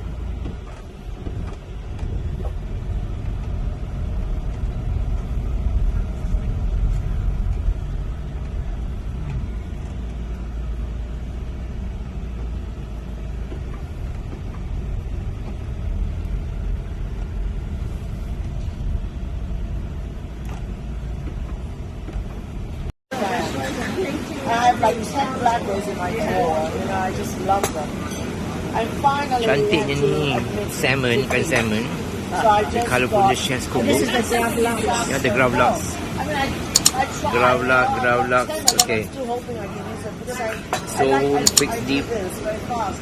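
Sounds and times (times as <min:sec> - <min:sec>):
vehicle engine rumble: 0:00.0 - 0:43.0.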